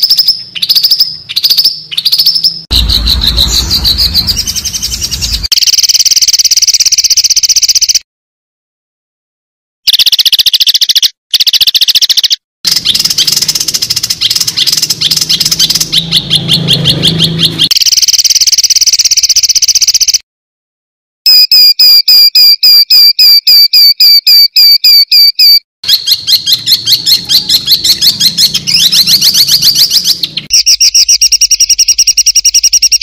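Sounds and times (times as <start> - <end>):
songbird trills: 0.0 - 8.0, 9.9 - 20.2, 24.3 - 33.0
sharp repeated bird chirps: 0.0 - 8.1, 9.9 - 20.2, 21.2 - 33.0.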